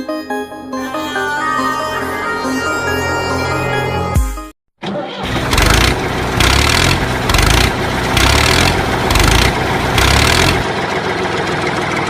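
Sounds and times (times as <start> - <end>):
engine pulsing: 5.2 - 12.0.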